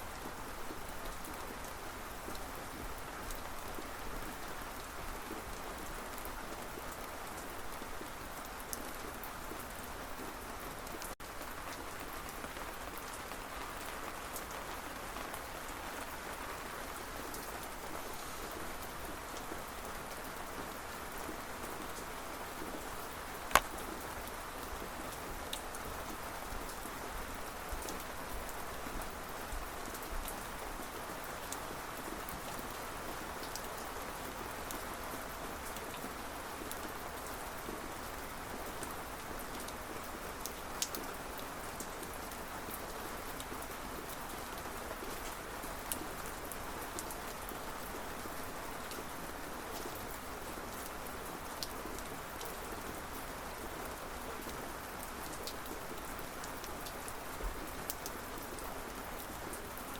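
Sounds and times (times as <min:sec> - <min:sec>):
steady rain falling: 0:00.0 - 0:59.9
raindrops ticking on surface: 0:21.2 - 0:30.6, 0:32.3 - 0:34.0, 0:54.4 - 0:59.9.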